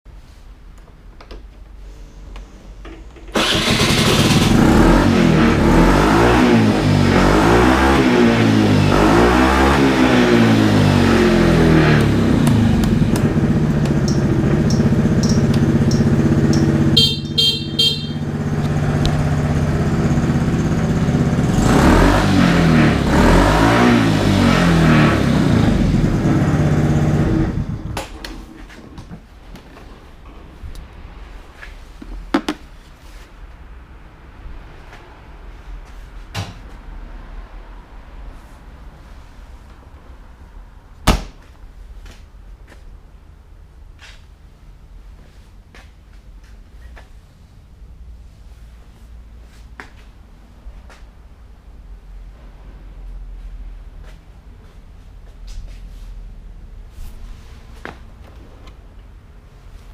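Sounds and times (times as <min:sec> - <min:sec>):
scooter engine revving and idling: 0:03.4 - 0:28.0
scooter horn short beeps: 0:14.1 - 0:18.5.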